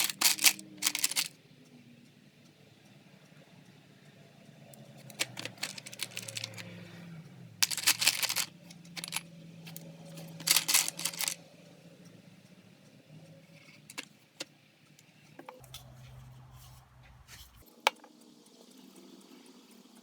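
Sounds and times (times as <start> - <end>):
small hard objects clicking: 0.0 - 1.3, 4.8 - 6.7, 7.6 - 11.4, 13.9 - 14.1.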